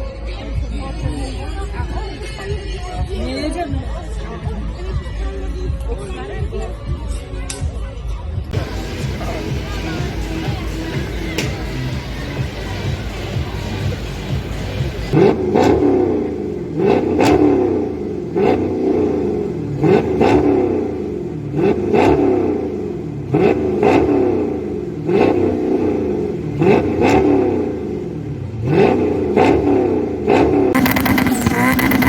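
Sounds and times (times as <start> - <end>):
car engine revving: 8.5 - 32.0
engine exhaust cracks: 8.6 - 22.7, 28.6 - 32.0.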